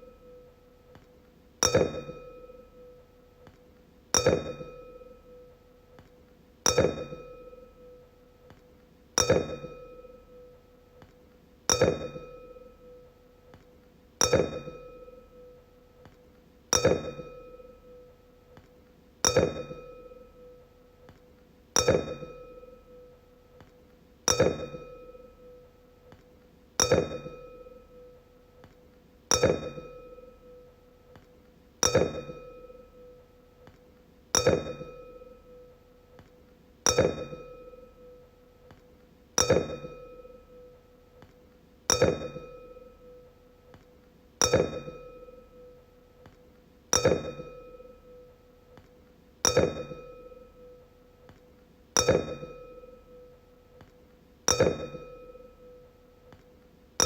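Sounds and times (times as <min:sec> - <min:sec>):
wine glass tapped ringing: 0:01.6 - 0:03.0, 0:04.2 - 0:05.5, 0:09.2 - 0:10.5, 0:11.7 - 0:13.0, 0:14.2 - 0:15.5, 0:16.7 - 0:18.0, 0:19.2 - 0:20.6, 0:21.8 - 0:23.1, 0:24.3 - 0:25.6, 0:26.8 - 0:28.1, 0:29.3 - 0:30.7, 0:31.8 - 0:33.1, 0:34.4 - 0:35.7, 0:36.9 - 0:38.2, 0:39.4 - 0:40.7, 0:41.9 - 0:43.2, 0:44.4 - 0:45.8, 0:47.0 - 0:48.3, 0:49.4 - 0:50.8, 0:52.0 - 0:53.4, 0:54.5 - 0:55.9.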